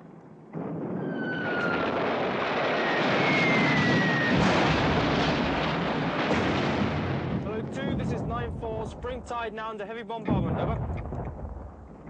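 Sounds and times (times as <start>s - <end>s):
jet aircraft roar: 1.0s - 8.6s.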